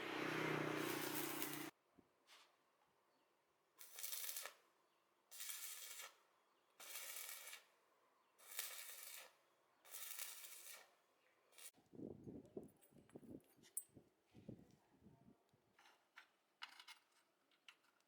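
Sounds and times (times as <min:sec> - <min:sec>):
scratchy strokes: 0:00.2 - 0:01.7.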